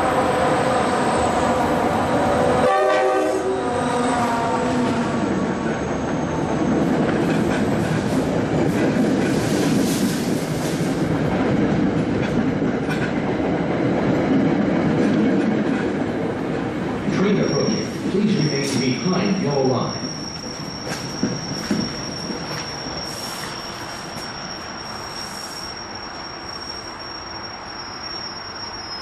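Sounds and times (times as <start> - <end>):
train rumbling past: 0.0 - 29.0
train horn: 2.6 - 3.7.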